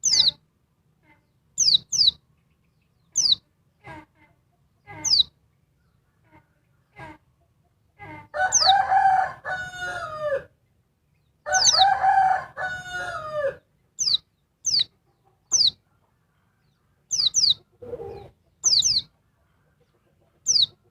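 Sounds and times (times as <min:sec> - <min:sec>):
short high downslurred bird calls: 0:00.0 - 0:00.4, 0:01.0 - 0:07.3, 0:08.0 - 0:10.3, 0:11.2 - 0:15.8, 0:16.6 - 0:19.2.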